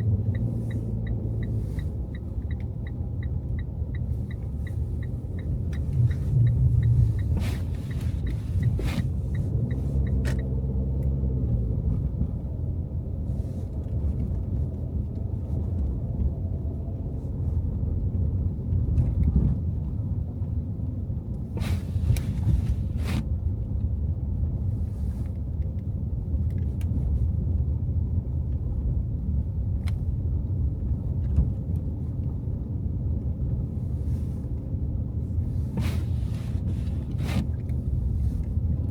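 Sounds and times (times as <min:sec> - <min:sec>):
light even ticking: 0:00.0 - 0:10.5
car engine and tyres rumbling: 0:00.0 - 0:38.9.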